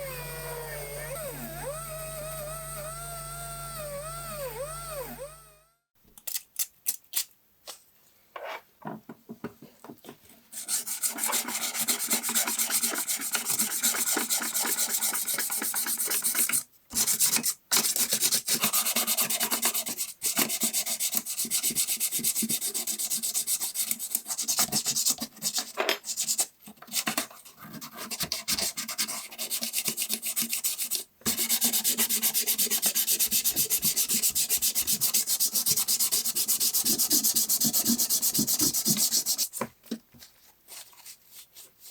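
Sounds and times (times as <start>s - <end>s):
sandpaper rubbing on metal: 29.0s - 39.5s.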